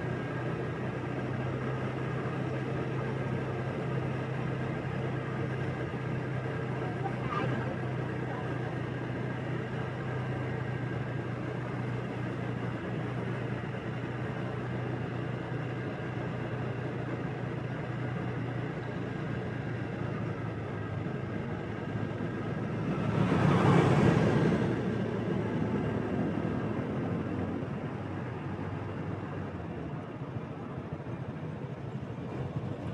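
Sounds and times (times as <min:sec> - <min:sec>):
motorbike engine hum: 0:00.0 - 0:32.9
road and wind rush: 0:00.0 - 0:32.9
vehicle passing close: 0:22.7 - 0:26.0.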